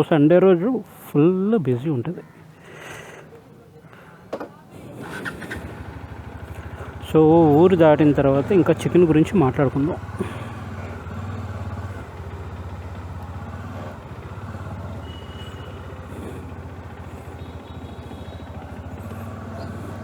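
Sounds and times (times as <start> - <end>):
motorcycle engine running: 5.0 - 20.0.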